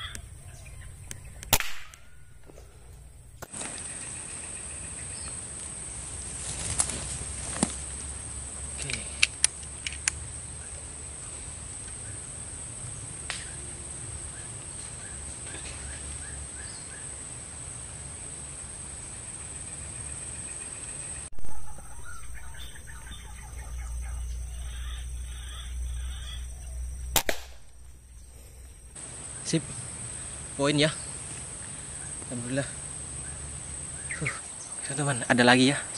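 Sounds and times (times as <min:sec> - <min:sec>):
outdoor background noise: 0:00.0 - 0:35.9
rifle shot cracks: 0:01.4 - 0:02.2, 0:27.1 - 0:27.7
sharp clicks: 0:27.0 - 0:28.7.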